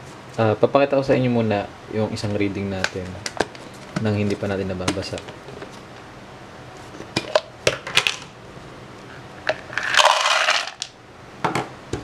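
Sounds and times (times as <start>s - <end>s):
beans rattling into plastic container: 9.7s - 10.9s.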